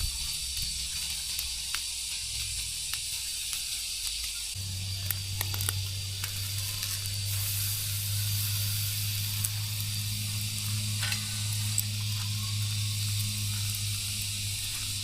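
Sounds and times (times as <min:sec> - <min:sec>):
high hiss: 0:00.0 - 0:15.0
ticks and crackles: 0:00.0 - 0:15.0
low hum: 0:04.3 - 0:15.0.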